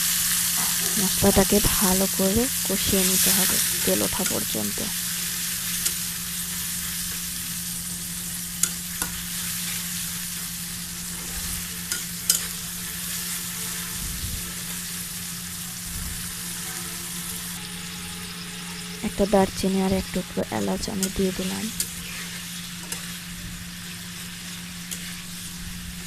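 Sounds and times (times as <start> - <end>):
low hum: 0.0 - 5.3, 13.5 - 22.2
paste sizzling in oil: 0.0 - 26.0.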